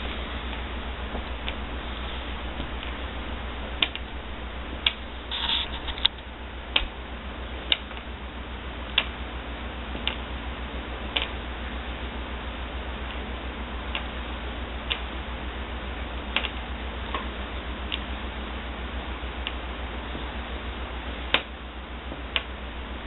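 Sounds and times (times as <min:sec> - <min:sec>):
low hum: 0:00.0 - 0:23.0
brief scrape: 0:05.3 - 0:06.1.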